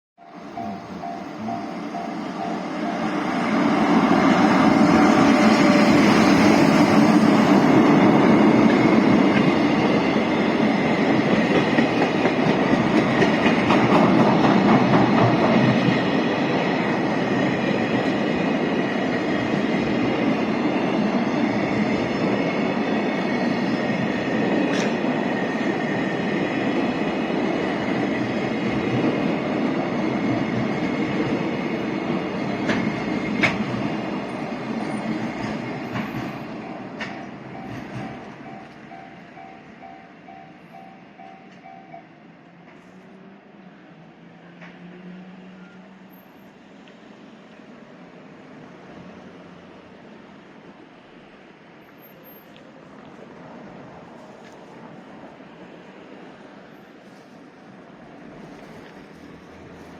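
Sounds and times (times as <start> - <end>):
freight train wheels clattering: 3.9 - 16.5, 32.5 - 39.7.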